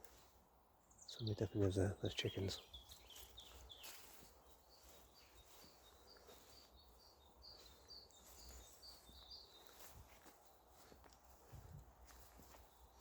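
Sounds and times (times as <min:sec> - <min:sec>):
bird chirping: 0:00.8 - 0:11.1.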